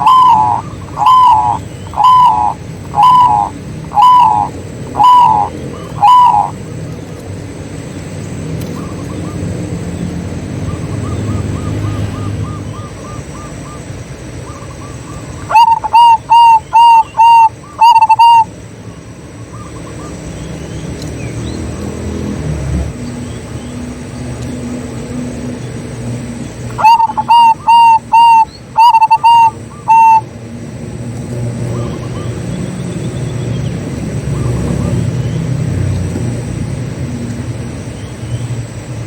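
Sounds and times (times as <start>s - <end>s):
dove cooing: 0.0s - 6.7s, 14.8s - 18.5s, 26.7s - 30.3s
low background rumble: 0.0s - 39.0s.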